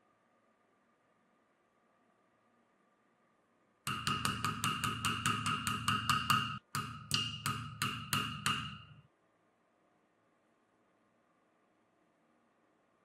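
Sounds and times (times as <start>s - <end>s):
sharp ringing knocks: 3.9s - 9.0s.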